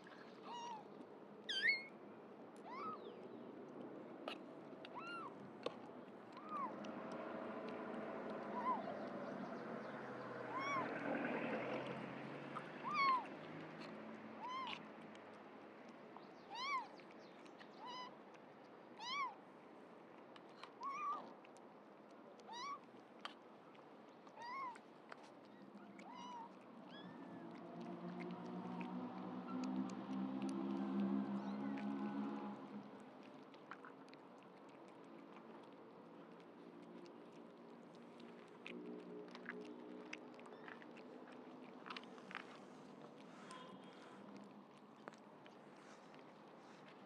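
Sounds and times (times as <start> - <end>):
kittens mewing: 10.5 - 11.0.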